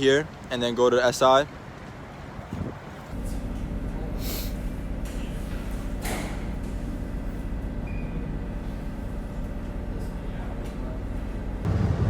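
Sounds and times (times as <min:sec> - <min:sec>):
train rumbling: 0:11.6 - 0:12.0.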